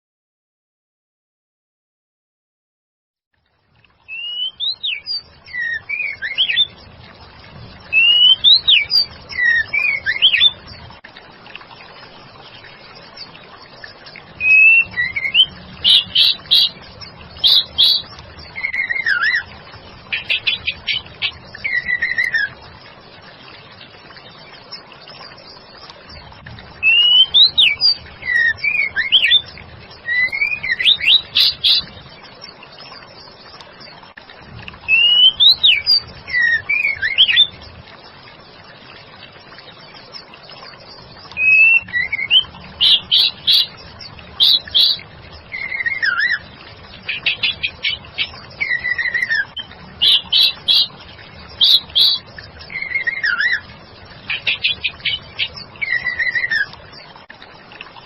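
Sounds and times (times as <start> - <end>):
bird singing whistled phrases: 4.1 - 6.7, 7.9 - 10.6, 14.4 - 16.8, 17.4 - 19.5, 20.2 - 22.5, 26.8 - 31.9, 34.9 - 37.5, 41.4 - 43.7, 44.4 - 46.4, 47.1 - 50.9, 51.6 - 53.6, 54.4 - 56.7.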